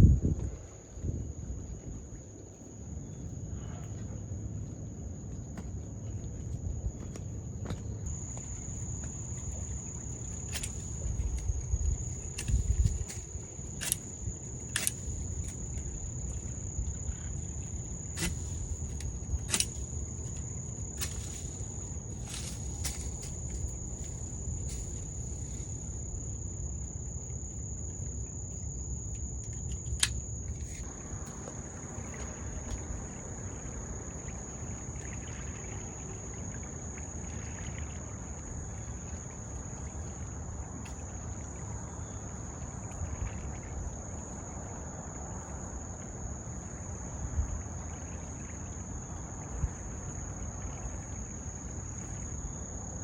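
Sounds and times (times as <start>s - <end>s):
insects droning: 0.0s - 53.0s
sharp click: 14.7s - 15.0s, 30.0s - 30.2s.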